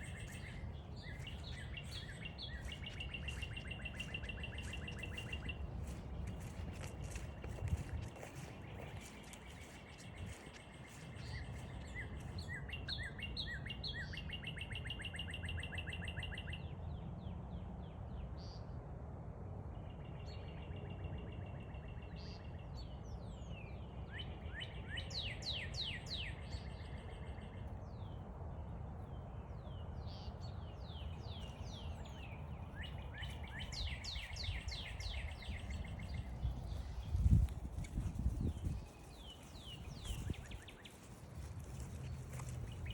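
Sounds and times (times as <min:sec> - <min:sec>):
footsteps: 0:00.0 - 0:12.5, 0:33.3 - 0:42.9
low wind rumble: 0:00.0 - 0:14.7, 0:16.6 - 0:42.9
songbirds chirping: 0:00.0 - 0:18.7, 0:19.8 - 0:42.9.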